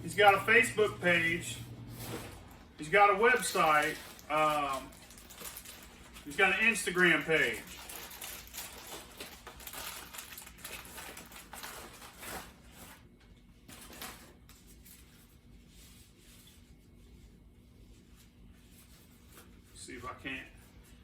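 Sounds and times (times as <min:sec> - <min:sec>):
packaging rustling: 0:01.9 - 0:13.1.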